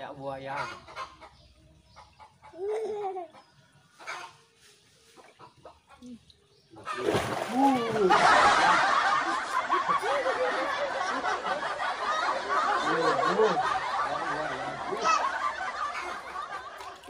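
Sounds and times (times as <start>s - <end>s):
fish splashing in water: 6.8s - 8.4s
people laughing: 6.9s - 17.0s.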